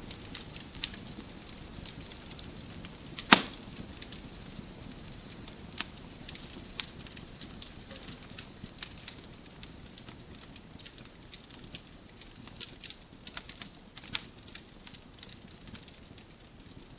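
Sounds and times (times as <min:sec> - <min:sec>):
wood fire crackling: 0:00.0 - 0:16.9
loud fire pop: 0:03.2 - 0:03.8.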